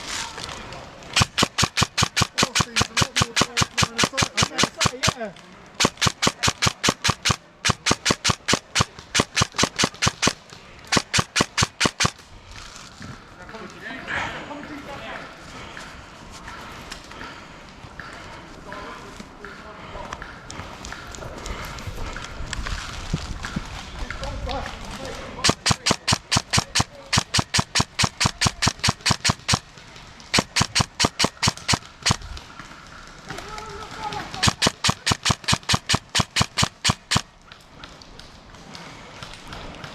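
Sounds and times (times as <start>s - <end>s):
airsoft gun firing single shots: 1.1s - 12.2s, 25.4s - 29.7s, 30.3s - 32.3s, 34.3s - 37.3s.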